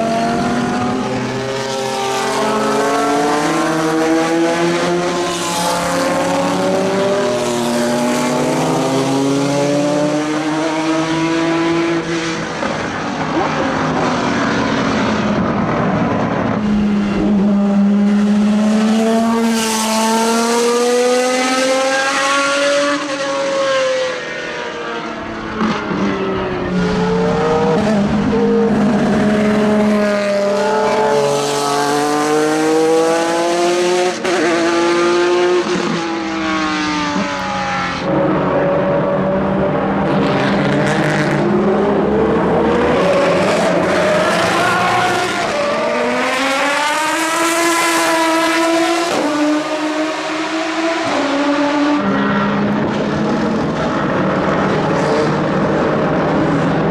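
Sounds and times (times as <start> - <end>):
racing cars passing by: 0.0 - 56.9.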